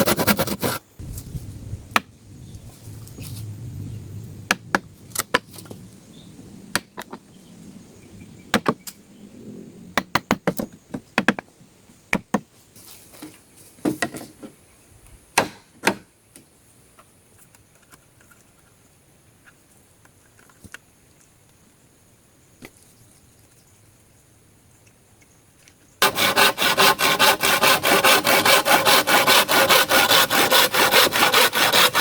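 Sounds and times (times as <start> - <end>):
wood being chopped: 15.4 - 16.1.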